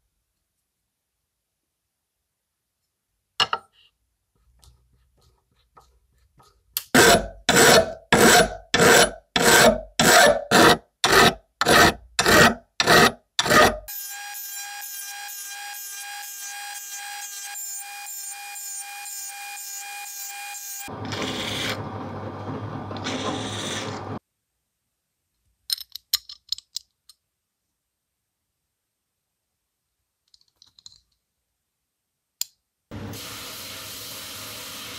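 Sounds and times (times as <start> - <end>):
file rasping on metal part: 6.9 - 13.9
power tool high whine: 13.9 - 24.2.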